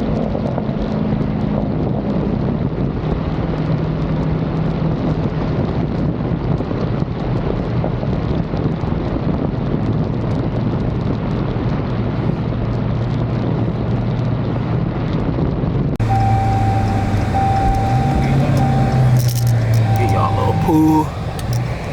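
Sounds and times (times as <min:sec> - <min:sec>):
wind buffeting microphone: 0:16.0 - 0:20.0
electronic chime beeping: 0:16.0 - 0:21.1
car engine droning: 0:16.0 - 0:21.9.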